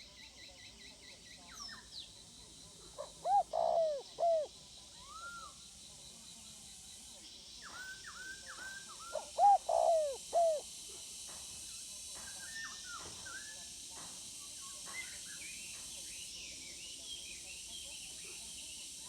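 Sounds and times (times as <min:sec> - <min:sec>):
dove cooing: 0:03.0 - 0:04.5, 0:09.2 - 0:10.6
small birds chirping: 0:09.2 - 0:10.6.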